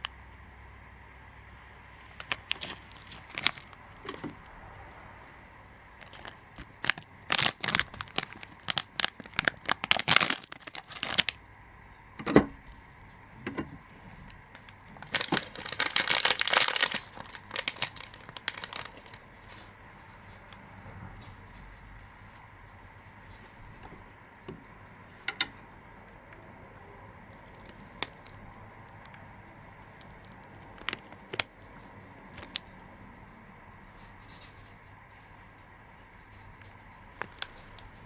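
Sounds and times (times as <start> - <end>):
plastic packaging crinkling: 2.0 - 4.4, 6.0 - 11.4, 14.4 - 19.4, 30.2 - 31.6.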